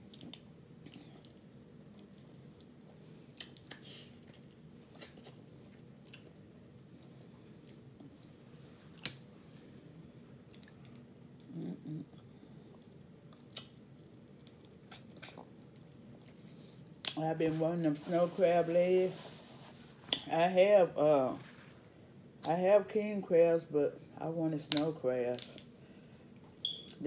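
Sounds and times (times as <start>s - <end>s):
person chewing and smacking: 0.1s - 6.4s, 10.4s - 16.4s.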